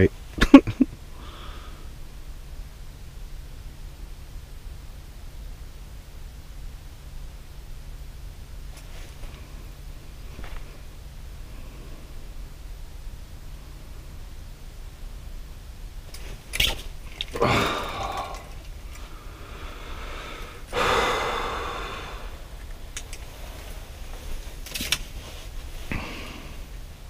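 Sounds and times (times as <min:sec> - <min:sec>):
steady low hum: 0:00.0 - 0:27.0
heavy breathy exhalations: 0:01.1 - 0:01.9, 0:17.3 - 0:22.6, 0:25.8 - 0:26.7
handling noise clicks: 0:16.1 - 0:19.1, 0:22.6 - 0:25.2.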